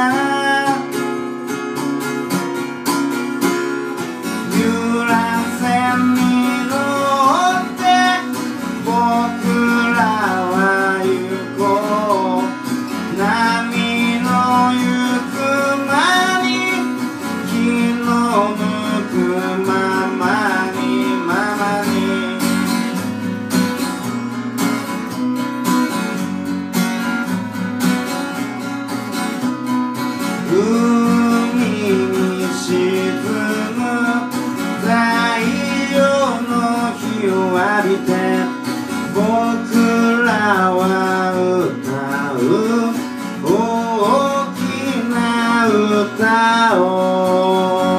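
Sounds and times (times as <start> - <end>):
man singing: 0.0 - 1.4, 4.2 - 23.3, 30.3 - 47.9
acoustic guitar strumming: 0.0 - 47.9.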